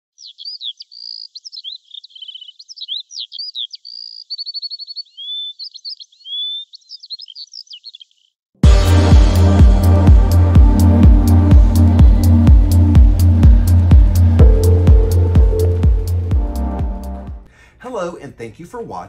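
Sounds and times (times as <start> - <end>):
songbird singing: 0.1 - 8.4
loud electronic music: 8.6 - 17.5.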